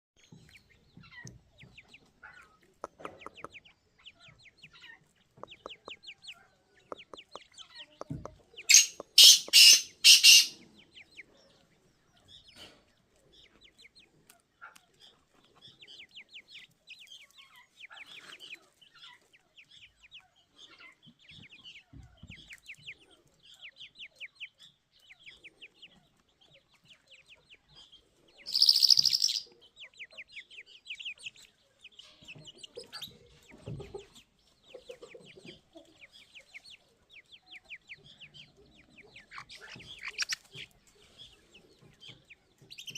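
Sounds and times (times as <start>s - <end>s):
chicks cheeping: 0.2s - 42.9s
loud harsh bird bursts: 8.7s - 10.6s.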